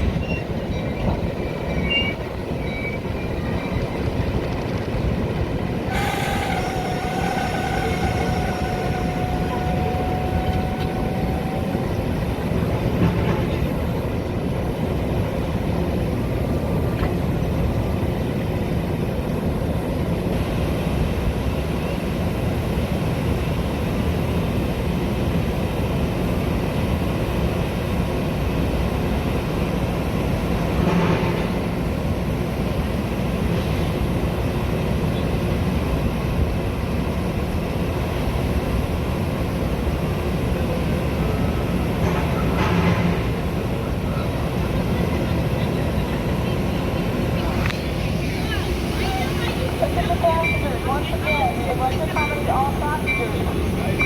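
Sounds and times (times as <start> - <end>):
train rumbling on rails: 0.0 - 54.0
faint high squeal: 5.9 - 12.8.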